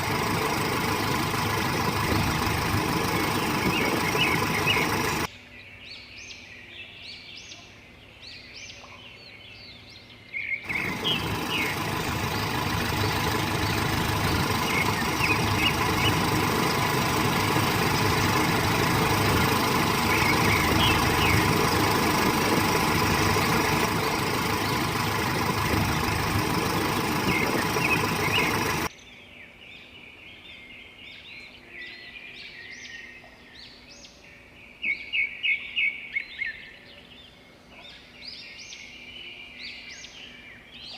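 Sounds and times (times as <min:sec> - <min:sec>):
truck engine running: 0:00.0 - 0:05.3, 0:10.7 - 0:28.9
birds chirping: 0:00.0 - 0:40.9.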